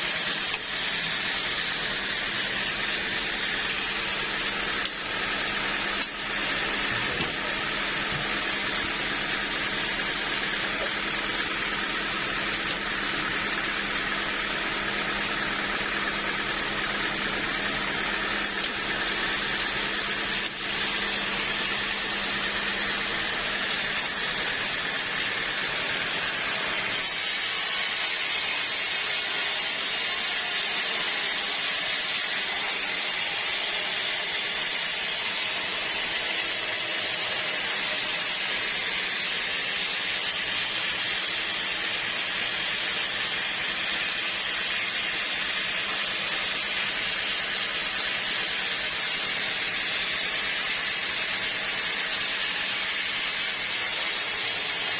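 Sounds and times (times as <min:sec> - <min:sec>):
sawmill saw running: 0:00.0 - 0:54.9.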